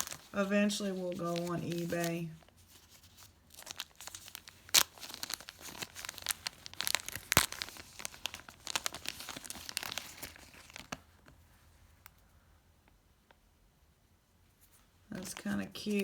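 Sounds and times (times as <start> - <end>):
plastic bag crinkling: 0.0 - 11.4, 15.1 - 16.0.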